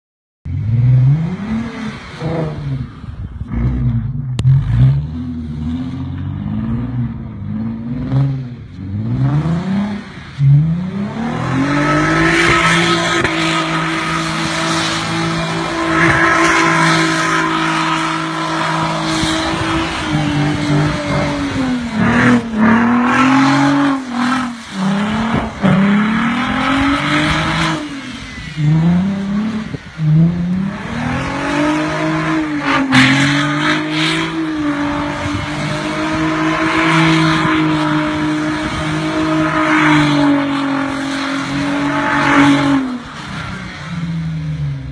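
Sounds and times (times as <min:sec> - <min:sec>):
car engine revving: 0:00.5 - 0:44.9
tyres spinning through snow: 0:09.0 - 0:44.3.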